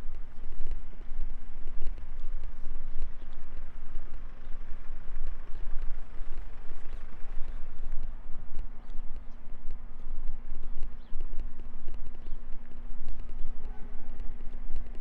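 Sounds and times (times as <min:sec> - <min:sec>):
faint steady hum: 0:00.0 - 0:15.0
footsteps on pavement: 0:00.0 - 0:15.0
wind buffeting microphone: 0:00.0 - 0:15.0.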